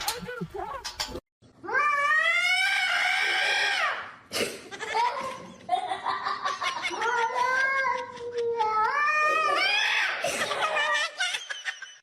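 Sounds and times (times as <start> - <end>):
cat yowling: 1.7 - 3.9.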